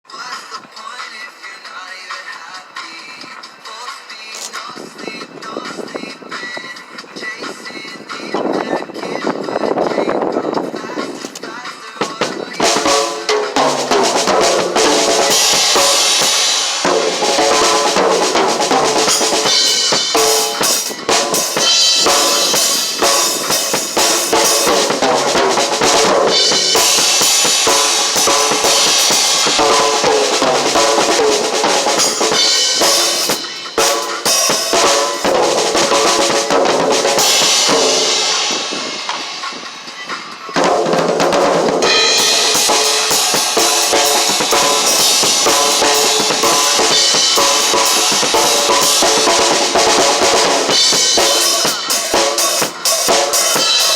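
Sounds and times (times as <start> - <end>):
loud drumming on drum kit: 11.8 - 53.9.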